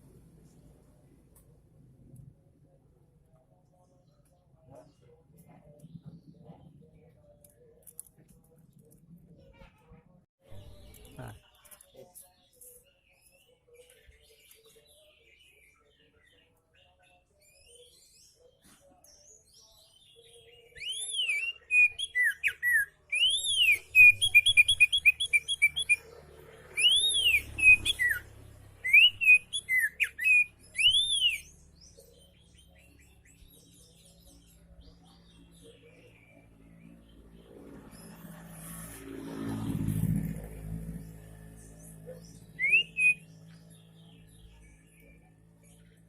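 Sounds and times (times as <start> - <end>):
bird singing whistled notes: 19.2 - 26.1, 26.7 - 37.0, 41.6 - 46.0.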